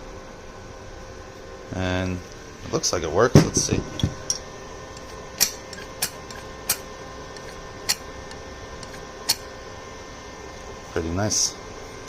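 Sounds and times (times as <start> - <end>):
steady background hum: 0.0 - 12.0
sharp metal clicks: 5.0 - 6.8.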